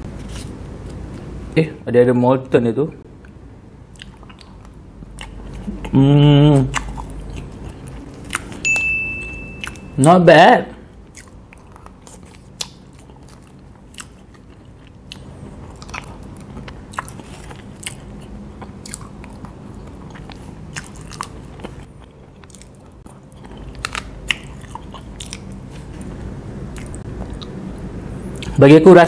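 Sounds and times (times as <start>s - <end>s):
close chewing and wet mouth sounds: 3.2s - 8.6s, 9.6s - 9.9s, 11.0s - 26.1s, 26.7s - 27.7s, 28.3s - 28.6s.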